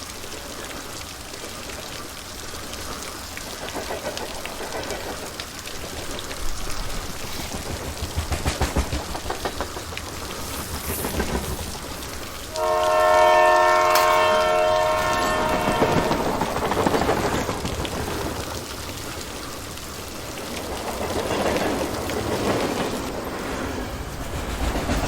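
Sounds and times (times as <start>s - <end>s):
running train rumbling: 0.0s - 25.0s
train horn chord: 12.5s - 16.4s.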